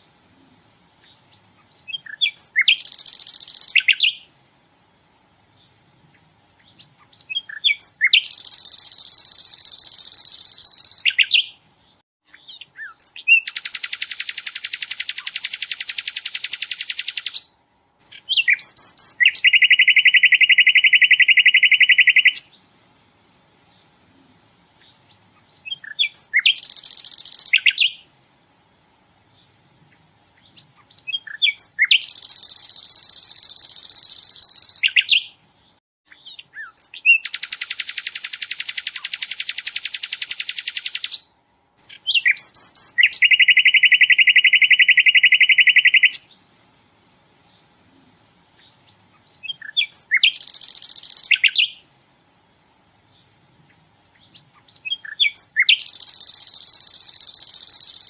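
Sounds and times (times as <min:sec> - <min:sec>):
bird chips and fast high trill: 0:02.4 - 0:04.2, 0:07.4 - 0:11.4, 0:13.0 - 0:17.4, 0:25.8 - 0:27.9, 0:31.2 - 0:35.2, 0:36.7 - 0:41.2, 0:49.5 - 0:51.7, 0:54.8 - 0:58.0.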